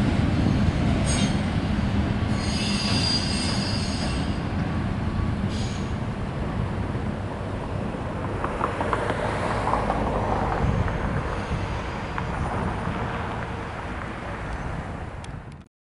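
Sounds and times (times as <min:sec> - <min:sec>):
train rumbling: 0:00.0 - 0:15.7
wind on microphone: 0:09.8 - 0:15.7.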